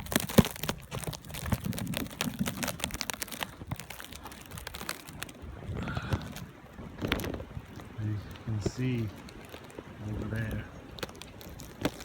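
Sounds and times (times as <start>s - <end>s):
snow crunching underfoot: 0.0s - 12.0s.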